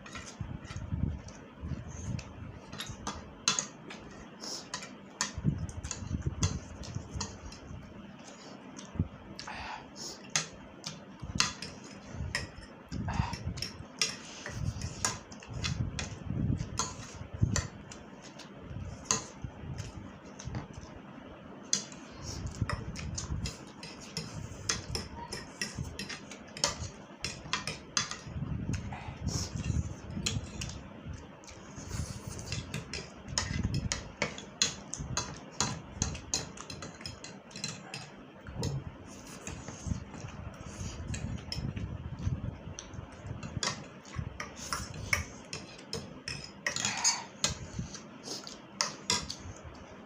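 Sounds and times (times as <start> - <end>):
cutlery clicking against bowl: 23.4 - 28.3, 32.5 - 38.1, 43.6 - 47.6.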